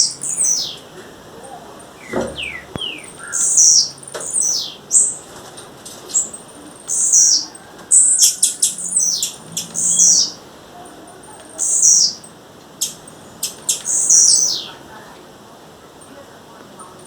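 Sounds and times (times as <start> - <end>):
bird calling high falling notes: 0.0 - 5.1
sharp bird clicks: 2.0 - 5.2, 8.1 - 10.3, 11.4 - 14.7.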